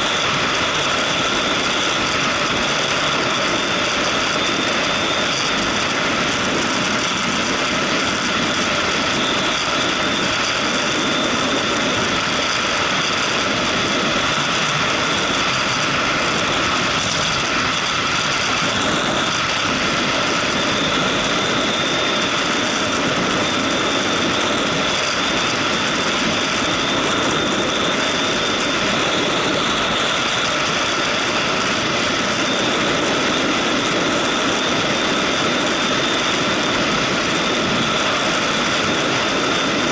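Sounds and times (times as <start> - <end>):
road and rushing air noise: 0.0 - 39.9.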